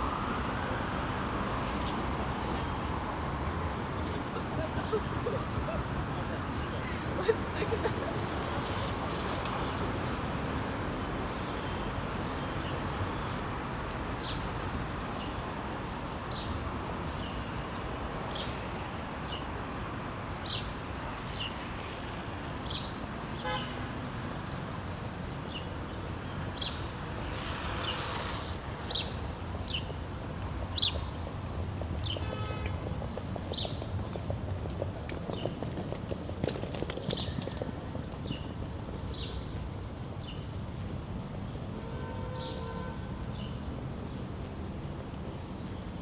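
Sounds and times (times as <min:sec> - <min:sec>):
passing cars: 0:00.0 - 0:46.0
footsteps clicking on pavement: 0:28.9 - 0:40.2.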